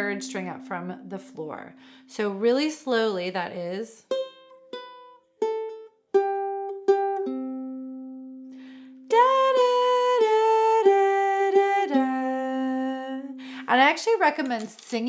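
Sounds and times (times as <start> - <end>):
ukulele single notes picked: 4.1 - 13.4.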